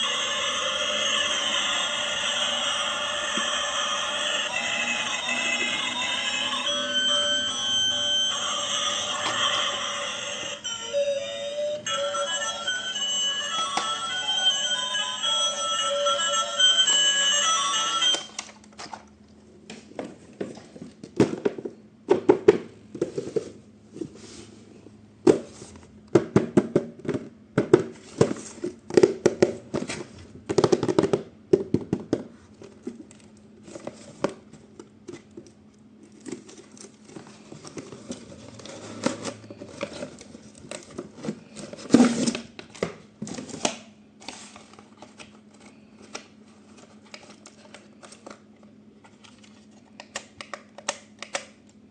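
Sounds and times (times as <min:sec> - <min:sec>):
cardboard and plastic crinkling: 0:32.3 - 0:49.9.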